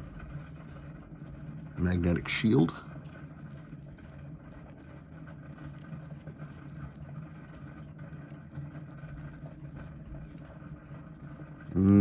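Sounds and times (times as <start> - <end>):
low hum with faint hiss: 0.0 - 12.0.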